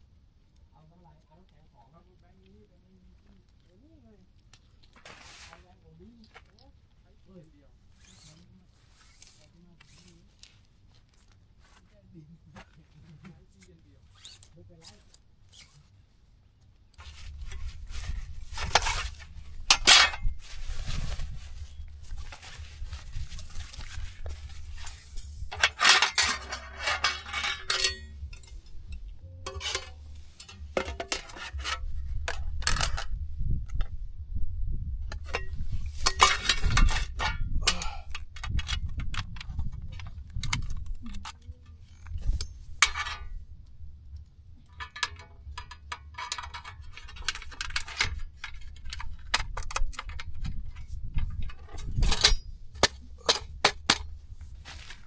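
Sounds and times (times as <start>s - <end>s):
low steady rumble: 5.4s - 55.0s
hard objects clinking and clattering: 17.0s - 33.2s, 35.1s - 43.4s, 44.6s - 50.6s.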